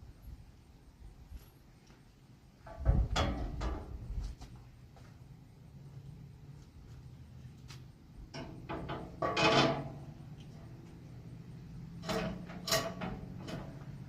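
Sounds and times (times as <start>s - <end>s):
metal clunk: 8.3s - 10.0s, 12.0s - 14.0s.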